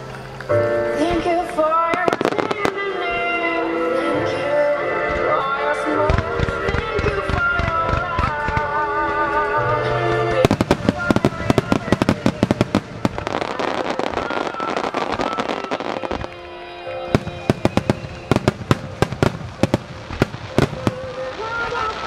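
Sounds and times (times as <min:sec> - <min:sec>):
fireworks bursting and crackling: 0:00.0 - 0:09.5, 0:10.3 - 0:22.0
faint music: 0:00.0 - 0:22.0
sharp firework bangs: 0:10.5 - 0:16.3, 0:17.2 - 0:22.0.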